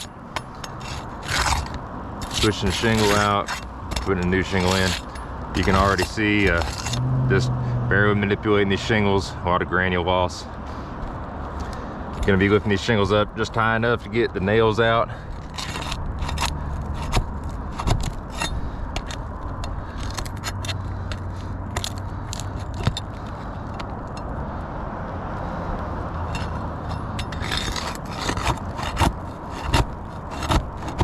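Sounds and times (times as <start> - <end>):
flat bar prying shingles: 0.0 - 7.0, 15.4 - 20.8, 26.4 - 31.0.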